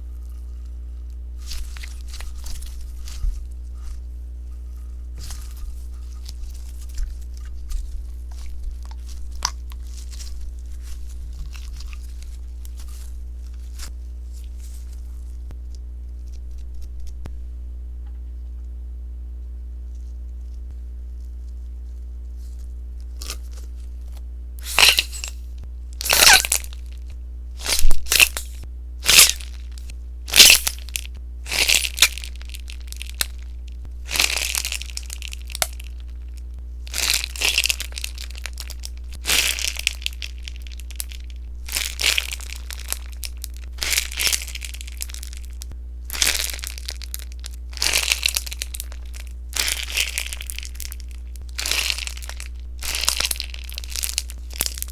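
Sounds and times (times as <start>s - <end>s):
slime crackling and popping: 1.4s - 4.0s, 4.7s - 15.6s, 24.6s - 25.4s, 26.0s - 54.9s.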